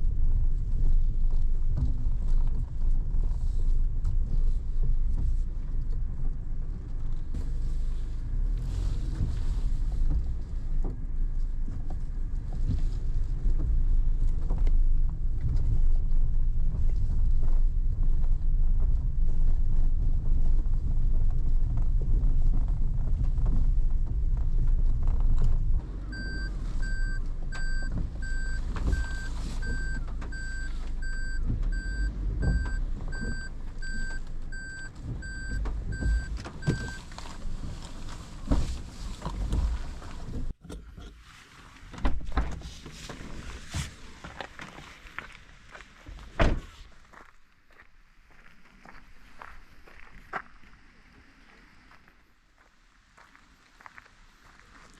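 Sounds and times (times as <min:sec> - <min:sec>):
car engine rumbling: 0:00.0 - 0:54.9
car warning beeps: 0:26.0 - 0:37.1.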